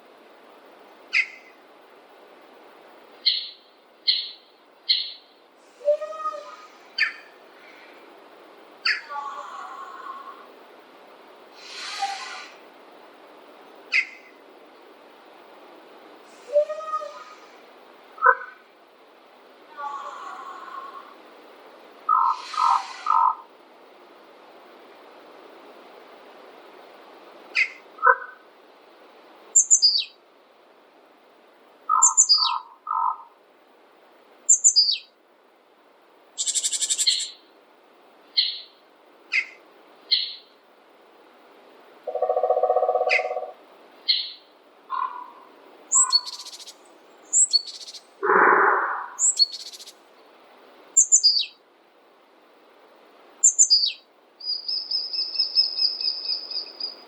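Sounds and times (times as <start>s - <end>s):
faint steady hiss: 0.0s - 57.0s
birds chirping and trilling: 1.1s - 1.6s, 3.2s - 8.0s, 8.8s - 10.2s, 13.9s - 14.4s, 22.1s - 23.4s, 27.6s - 28.2s, 29.6s - 30.2s, 31.9s - 33.3s, 34.5s - 35.1s, 36.4s - 37.5s, 38.3s - 40.6s, 42.1s - 50.3s, 51.0s - 51.6s, 53.4s - 57.0s
bird high falling call: 42.1s - 44.3s.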